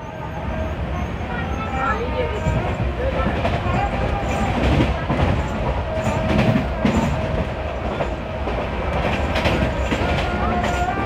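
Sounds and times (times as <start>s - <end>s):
train wheels rumbling on rail: 0.0s - 11.0s
wheels clacking over rail joints: 2.4s - 11.0s.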